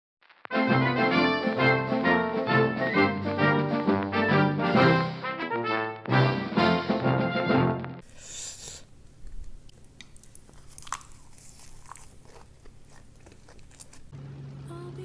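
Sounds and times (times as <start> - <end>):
person chewing food: 8.0 - 14.1.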